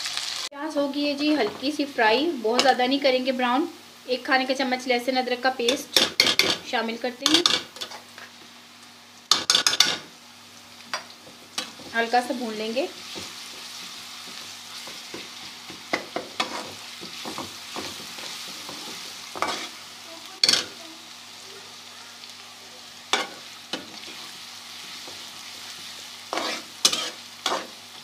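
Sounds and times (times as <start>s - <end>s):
onion sizzling in a pan: 0.0s - 28.0s
utensil scraping a pan: 13.0s - 19.8s, 25.0s - 27.8s.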